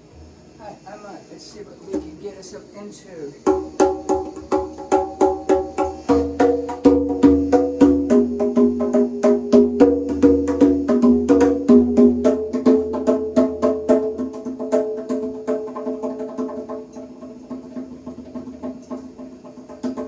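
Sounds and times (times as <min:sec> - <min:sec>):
pitched drums played: 0:01.9 - 0:02.5, 0:03.4 - 0:20.0.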